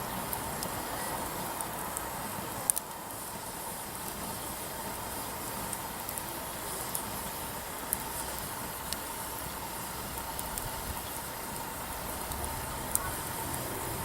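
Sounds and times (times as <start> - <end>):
fire rushing: 0.0 - 14.0
firewood crackling and popping: 0.0 - 14.0.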